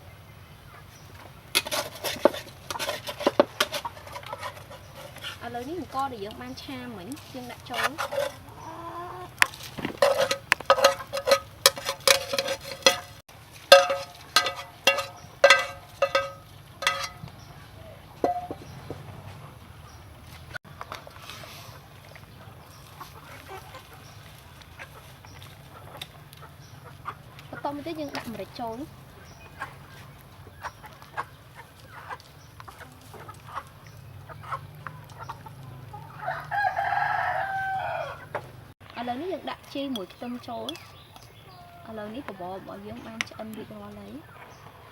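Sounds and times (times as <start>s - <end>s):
chicken clucking: 0.6s - 44.9s
utensil clinking on metal pot: 1.5s - 6.0s, 9.4s - 17.4s, 18.2s - 18.6s
rooster crowing: 36.0s - 38.4s.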